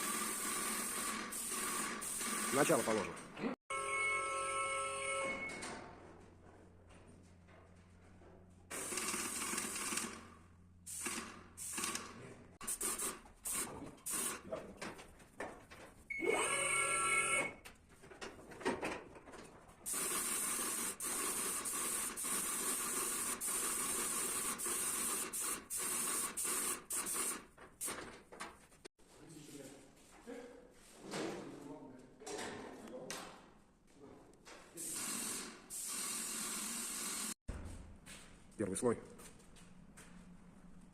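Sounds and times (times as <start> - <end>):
paint sprayer hissing: 0.0 - 2.9, 10.9 - 14.5, 19.9 - 28.0, 34.8 - 37.4.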